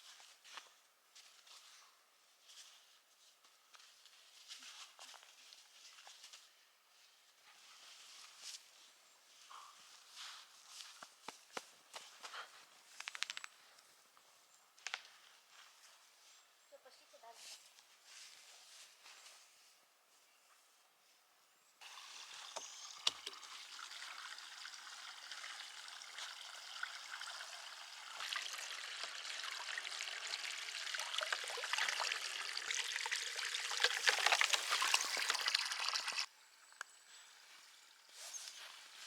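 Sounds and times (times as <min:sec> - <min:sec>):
water pouring in a stream: 0:21.8 - 0:36.3.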